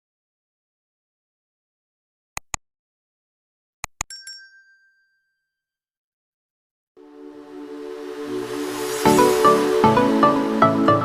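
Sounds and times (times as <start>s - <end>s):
sharp clicks: 2.4s - 2.6s.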